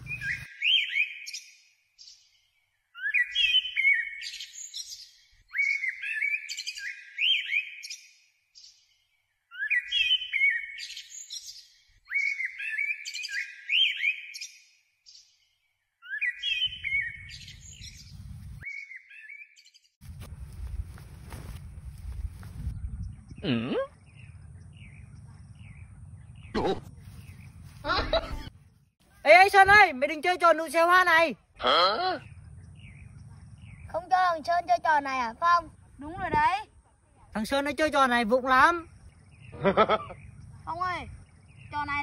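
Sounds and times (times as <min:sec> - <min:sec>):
bird chirping: 0:00.0 - 0:20.0, 0:20.6 - 0:29.3, 0:31.4 - 0:36.4, 0:37.4 - 0:42.0.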